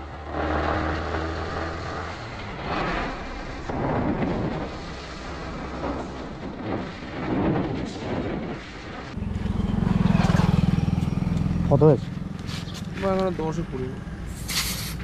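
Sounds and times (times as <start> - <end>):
wind buffeting microphone: 2.2 - 13.3
low rapidly pulsing engine: 9.1 - 15.0
motorcycle engine running: 9.2 - 14.5.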